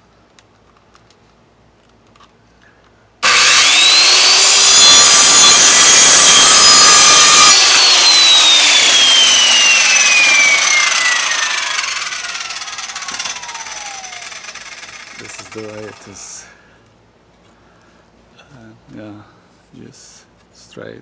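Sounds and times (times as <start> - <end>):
circular saw cutting wood: 3.2 - 16.4.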